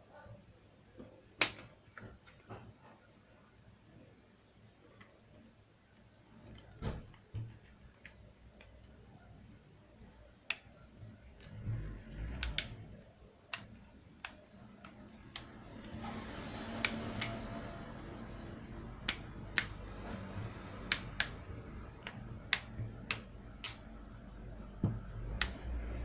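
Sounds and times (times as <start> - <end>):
sharp clicks: 22.0 - 23.9.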